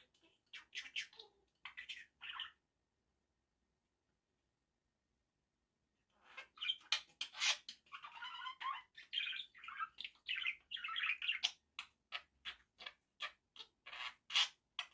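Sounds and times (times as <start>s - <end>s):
budgerigar chattering and warbling: 0.0s - 2.6s, 6.2s - 14.9s.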